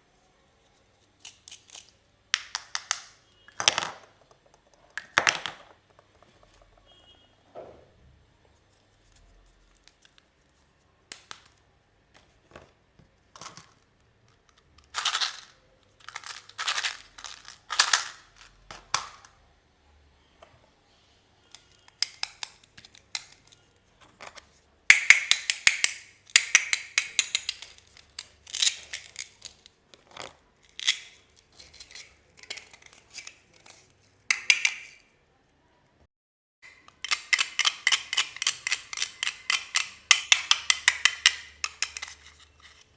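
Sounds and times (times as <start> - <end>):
plastic parts clicking: 1.2 - 6.3, 13.4 - 19.4, 21.5 - 35.0, 36.6 - 42.9
packaging crinkling: 14.8 - 18.7.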